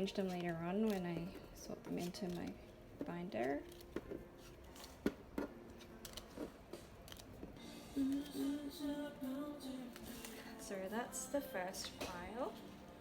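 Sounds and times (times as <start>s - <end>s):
soft background music: 0.0s - 13.0s
cards being stacked: 3.6s - 8.3s.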